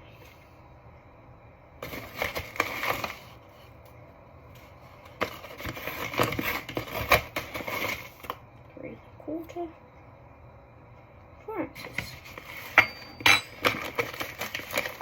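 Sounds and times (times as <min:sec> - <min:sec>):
bag crinkling and rustling: 0:13.6 - 0:15.0.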